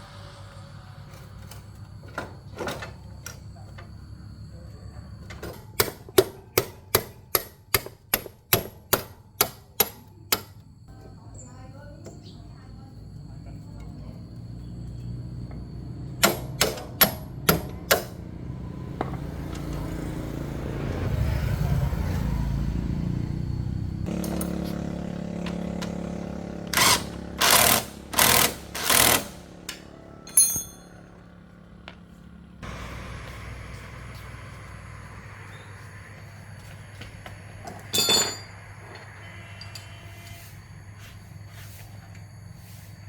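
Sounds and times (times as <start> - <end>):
short loud tool bursts: 26.7 - 29.5.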